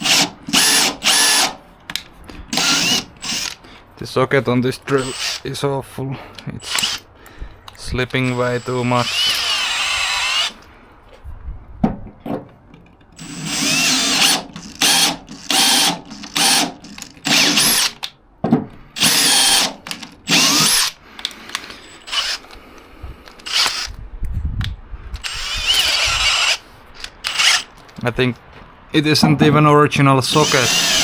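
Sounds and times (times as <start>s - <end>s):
power drill motor whine: 0.0s - 1.6s, 2.5s - 3.6s, 4.9s - 5.5s, 6.6s - 7.0s, 8.2s - 10.7s, 13.2s - 18.1s, 19.0s - 21.0s, 21.6s - 22.6s, 23.4s - 24.0s, 25.2s - 27.7s, 30.3s - 31.0s.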